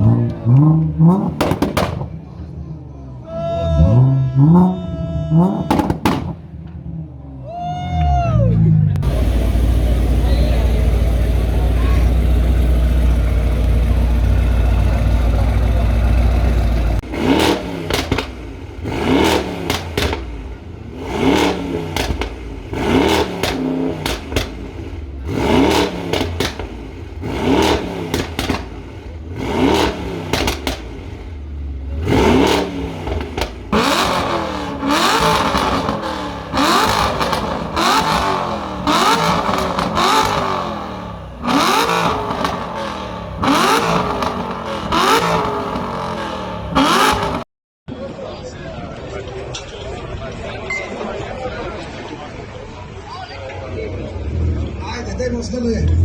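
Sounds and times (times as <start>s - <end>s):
exhaust crackling pops: 0.0s - 2.3s, 5.6s - 6.8s, 9.0s - 20.7s, 21.4s - 25.0s, 25.8s - 31.2s, 32.5s - 47.4s
car engine revving: 0.0s - 7.4s, 8.0s - 47.5s.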